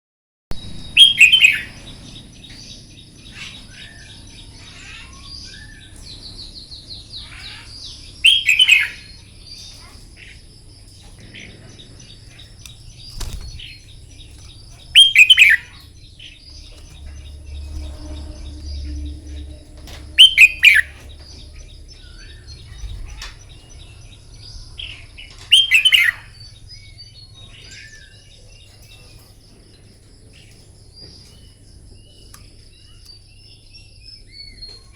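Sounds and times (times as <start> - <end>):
high insect drone: 0.6 - 25.5
bird singing song phrases: 0.6 - 34.9
faint bird chirps: 0.6 - 34.9.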